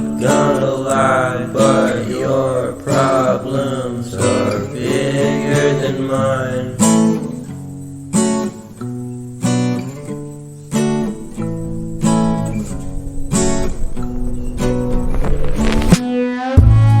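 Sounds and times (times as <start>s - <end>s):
person singing: 0.0s - 7.3s
acoustic guitar strumming: 0.0s - 17.0s.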